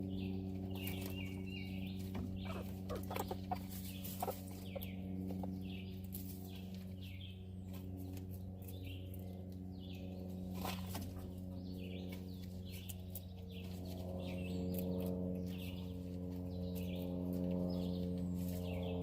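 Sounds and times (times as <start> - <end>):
low electrical hum: 0.0 - 19.0
small birds chirping: 0.0 - 19.0.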